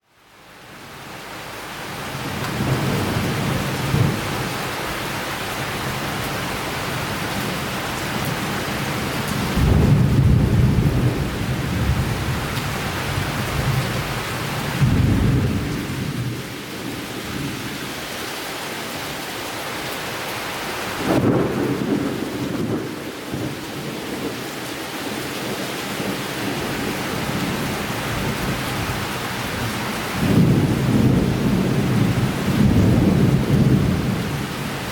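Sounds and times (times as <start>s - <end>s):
steady rain: 0.0s - 34.9s
thunder rumbling: 8.1s - 17.6s, 21.0s - 24.4s, 25.9s - 34.9s.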